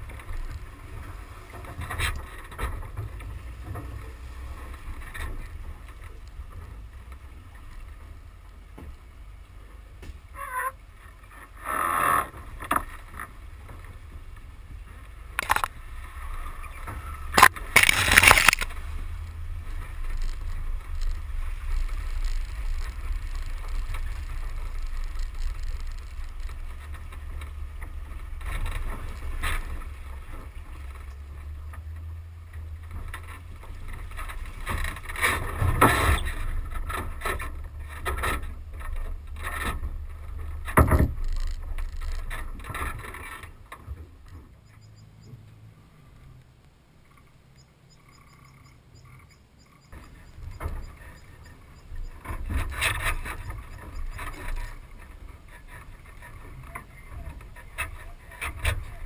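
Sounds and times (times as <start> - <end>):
wind buffeting and tyre rumble: 0.0 - 59.0
knocks and clatters from bumps: 32.6 - 44.5.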